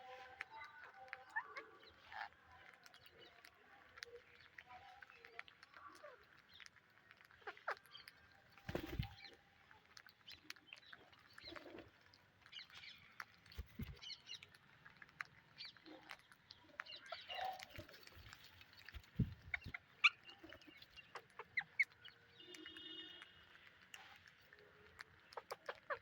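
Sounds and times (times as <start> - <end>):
parrots chirping: 16.9 - 23.0, 25.2 - 26.0.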